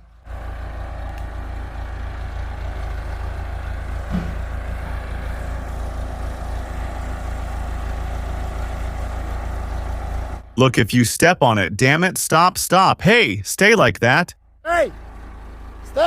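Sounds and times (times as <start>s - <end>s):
backhoe engine rumbling: 0.0s - 16.0s.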